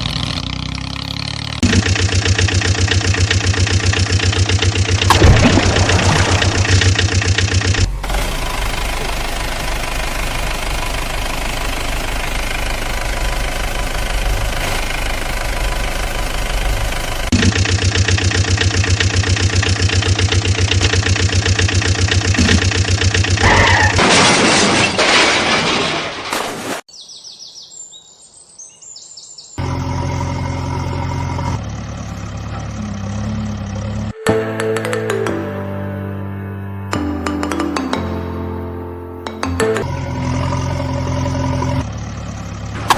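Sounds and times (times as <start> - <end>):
vehicle engine running: 0.0 - 24.1, 29.6 - 42.9
faint bird chirps: 26.9 - 29.6.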